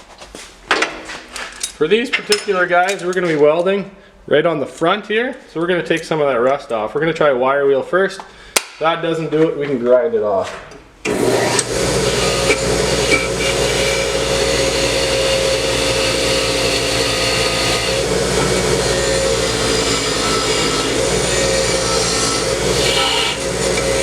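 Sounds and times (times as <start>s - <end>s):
wire wheel grinding steel: 11.1s - 24.0s.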